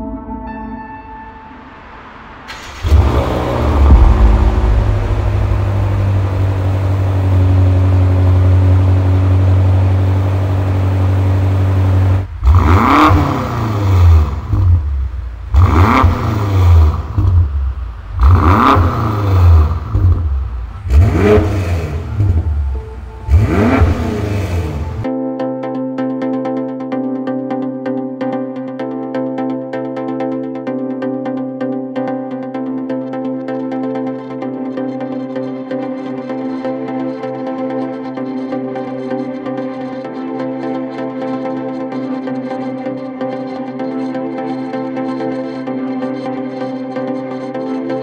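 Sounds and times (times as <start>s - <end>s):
car engine starting and idling: 2.2s - 25.1s
engine revving: 2.5s - 25.1s.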